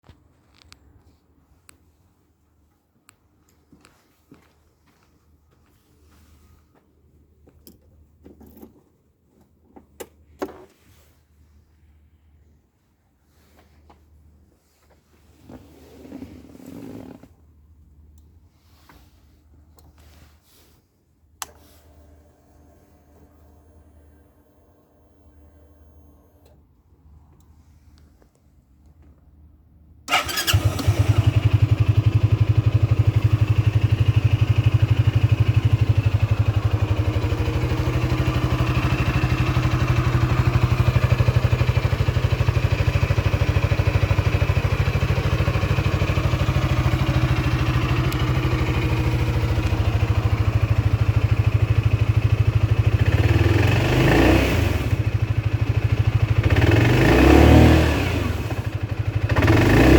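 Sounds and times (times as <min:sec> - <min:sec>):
scooter engine starting and idling: 0:15.4 - 0:17.3, 0:21.4 - 0:26.8, 0:30.0 - 0:59.9
engine revving: 0:52.9 - 0:59.9.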